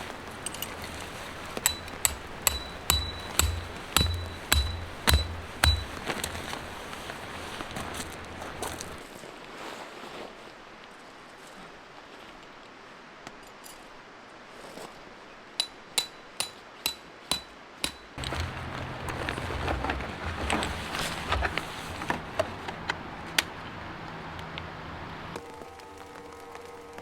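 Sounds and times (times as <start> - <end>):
sharp metallic strikes ringing: 1.6 - 6.2, 15.6 - 18.2
steady low hum: 1.6 - 6.3.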